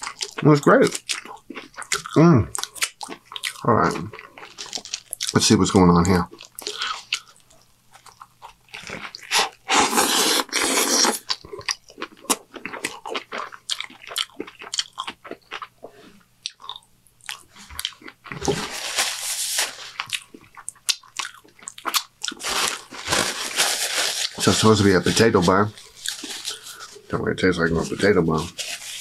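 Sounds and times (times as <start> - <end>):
paper napkin rustling: 18.5 - 20.0, 22.4 - 29.0.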